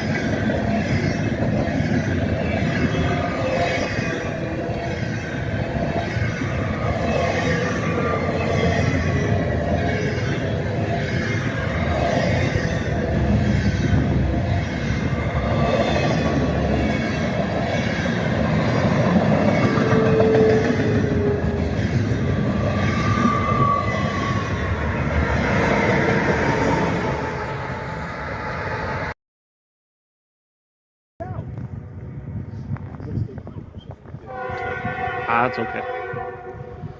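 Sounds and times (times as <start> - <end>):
freight train cars rolling: 0.0 - 29.0.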